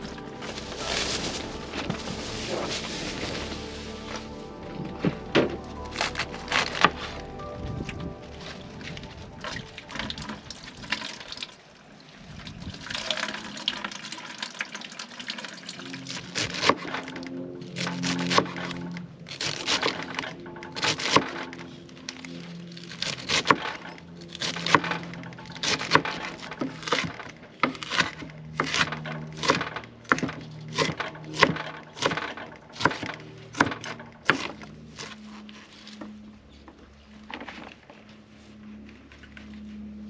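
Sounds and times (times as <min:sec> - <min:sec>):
wood fire crackling and popping: 0:00.0 - 0:11.6
low steady hum of tones: 0:00.0 - 0:40.0.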